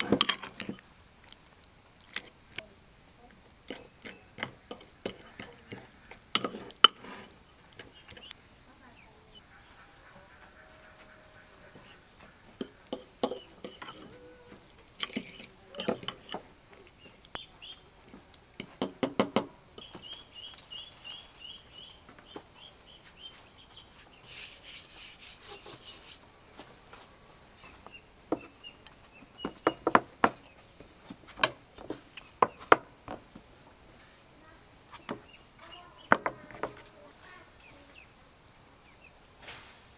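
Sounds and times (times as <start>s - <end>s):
dishes clinking: 0.0s - 0.8s, 3.7s - 8.3s, 12.6s - 17.0s
insects droning: 0.0s - 39.9s.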